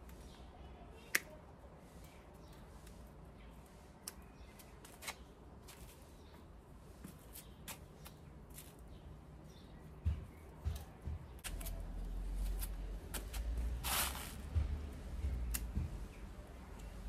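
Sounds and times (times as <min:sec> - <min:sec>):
leaves rustling: 0:11.4 - 0:14.6.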